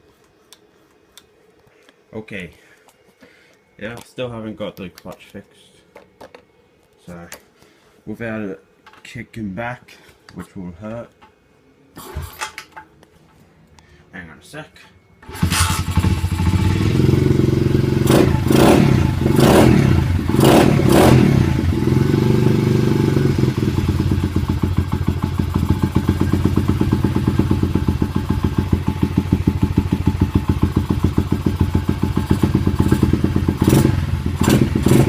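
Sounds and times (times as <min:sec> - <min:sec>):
dirt bike engine idling: 0:15.4 - 0:35.0.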